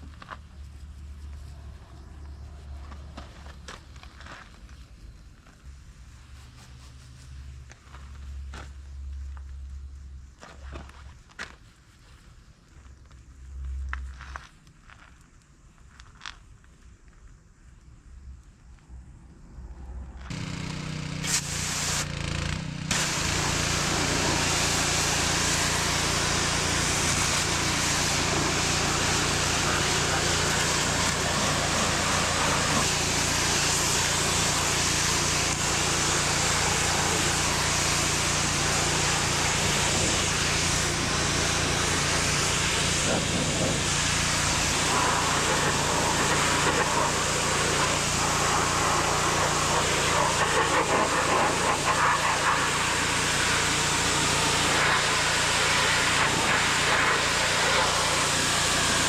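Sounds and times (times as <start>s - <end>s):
pressure washer spray hiss: 20.3s - 22.2s, 22.9s - 59.0s
pressure washer motor hum: 20.3s - 59.0s.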